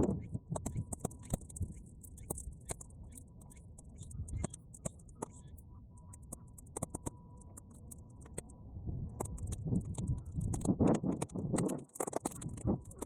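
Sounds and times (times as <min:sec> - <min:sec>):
low rumble of wind: 0:07.1 - 0:13.0.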